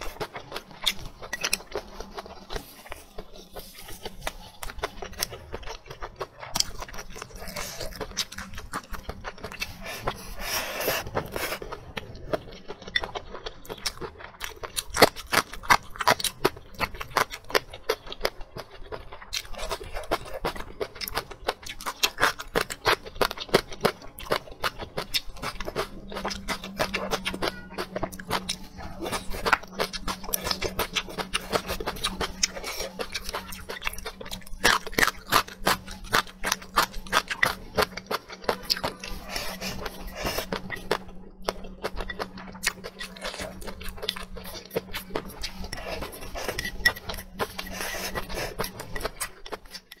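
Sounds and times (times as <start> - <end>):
chewing and mouth smacking: 0.0 - 50.0
steady low hum: 0.0 - 50.0
chopsticks scraping clay bowl: 43.0 - 50.0.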